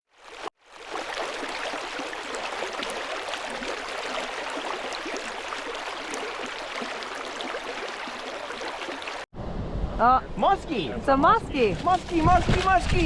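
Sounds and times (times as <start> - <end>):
small water splashes: 0.1 - 9.3
river water rushing: 0.2 - 9.2.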